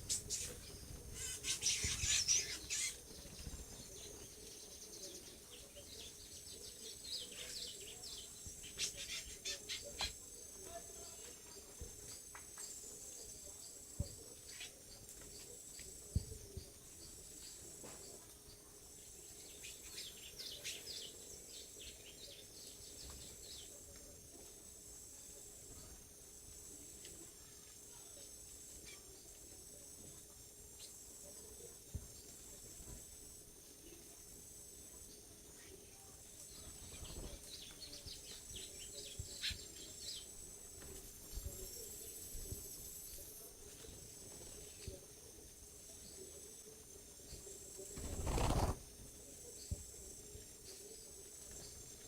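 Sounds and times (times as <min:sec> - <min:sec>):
bird chirping: 0:00.0 - 0:15.6
high insect drone: 0:00.0 - 0:52.0.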